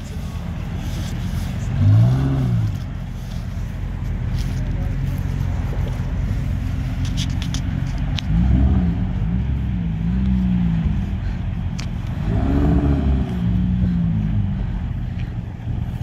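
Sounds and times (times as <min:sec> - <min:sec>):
sports car engine revving: 0:00.0 - 0:16.0.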